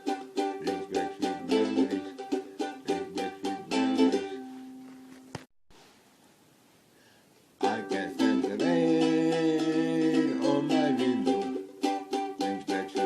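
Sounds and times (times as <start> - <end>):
strummed string instrument chords: 0.0 - 4.9, 7.6 - 13.0.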